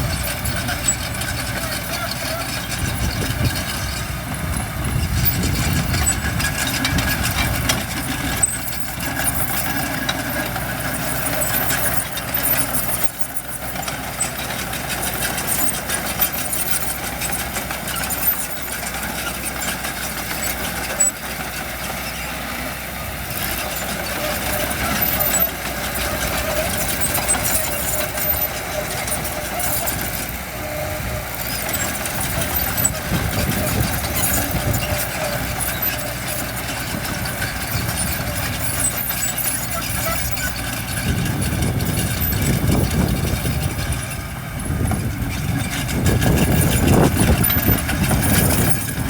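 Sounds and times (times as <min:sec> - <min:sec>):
heavy diesel engine running: 0:00.0 - 0:49.0.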